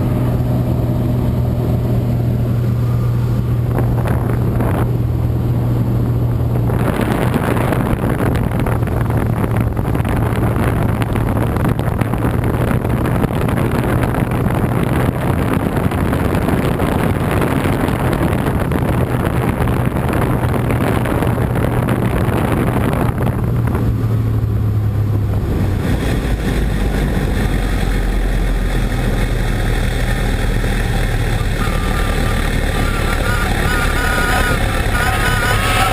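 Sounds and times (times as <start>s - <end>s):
airplane engine and propeller drone: 0.0s - 35.9s
rushing wind noise: 0.0s - 35.9s.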